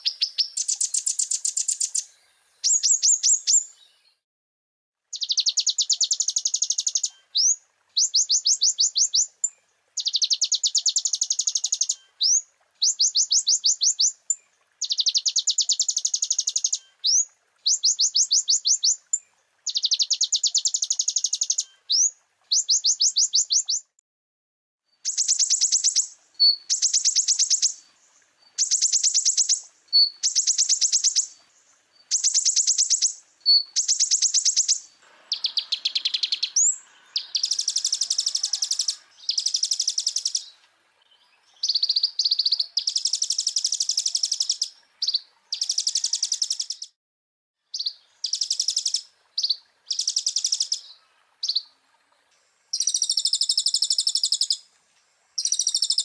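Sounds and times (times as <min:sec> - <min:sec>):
sunbird singing trilled notes: 0:00.0 - 0:04.2, 0:05.1 - 0:09.3, 0:14.8 - 0:23.9, 0:32.0 - 0:40.5, 0:52.7 - 0:54.6, 0:55.4 - 0:56.0.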